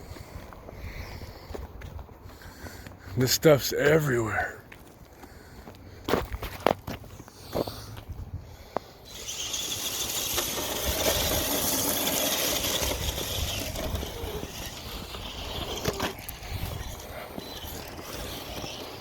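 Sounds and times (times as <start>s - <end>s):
electric motor high whine: 9.1s - 19.0s.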